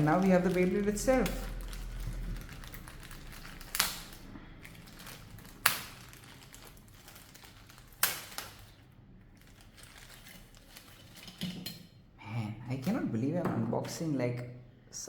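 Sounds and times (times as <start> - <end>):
plastic packaging cracks: 0.0 - 8.8, 9.4 - 11.2
plastic packaging crinkling: 0.0 - 11.4.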